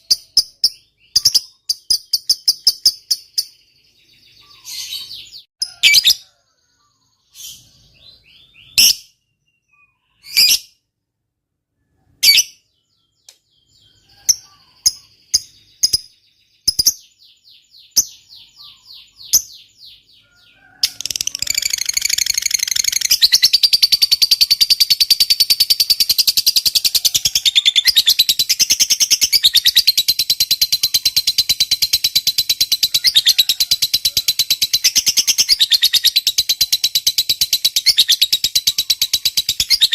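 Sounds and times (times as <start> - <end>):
lovebird chattering trill: 0.0 - 3.6, 20.8 - 39.9
lovebird chirping: 0.0 - 10.8, 11.8 - 39.9.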